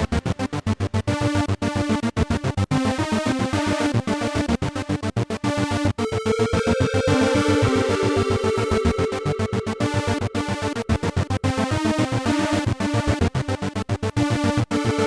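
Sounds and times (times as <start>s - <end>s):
held synth line: 6.0s - 12.8s
pulsing synth and drum pattern: 6.1s - 11.6s.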